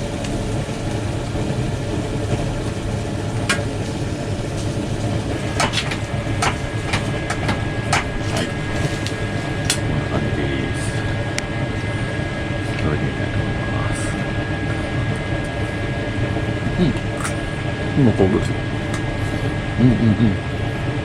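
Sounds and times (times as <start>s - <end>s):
chicken grilling over charcoal: 0.0s - 11.2s
steady low rumble: 0.0s - 21.0s
sharp pops and crackles: 0.1s - 10.0s.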